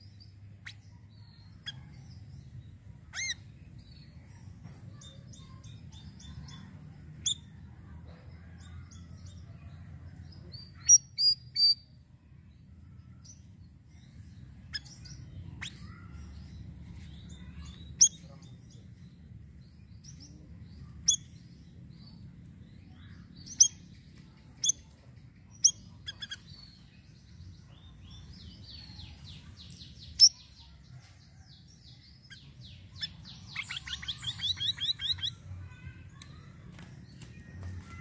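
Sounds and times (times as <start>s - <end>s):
bird singing sharp chips: 14.6s - 18.4s, 32.3s - 38.0s.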